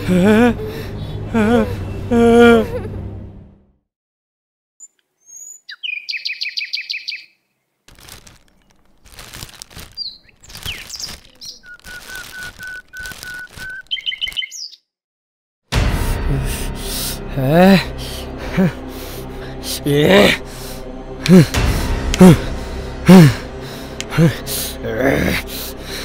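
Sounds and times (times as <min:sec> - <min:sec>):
small birds chirping: 0:04.8 - 0:14.9.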